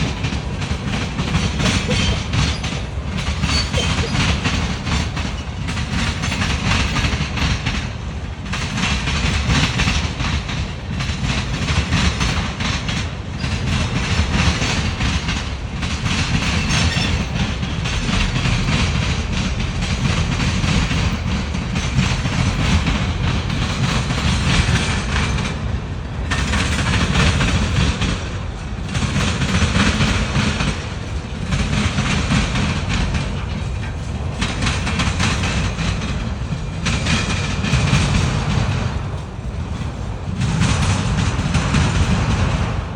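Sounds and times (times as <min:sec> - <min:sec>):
freight train cars rumbling past: 0:00.0 - 0:42.9
wheels clattering over rail joints: 0:00.0 - 0:42.9.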